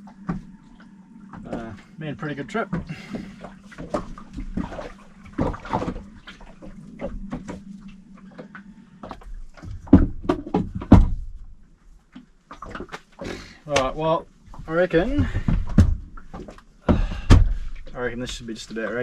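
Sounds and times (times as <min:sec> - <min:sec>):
steady low hum: 0:00.0 - 0:12.6
knocks and clattering: 0:09.1 - 0:11.4.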